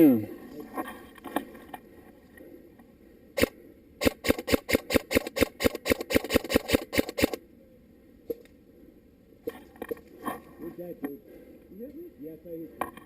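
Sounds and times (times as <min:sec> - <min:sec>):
airsoft rifle shots: 0:03.4 - 0:07.4.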